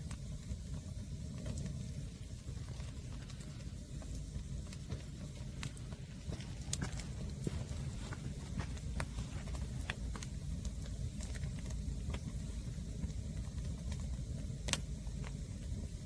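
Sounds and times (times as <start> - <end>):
fire low rumble: 0.0 - 16.0
firewood crackling and popping: 0.0 - 16.0.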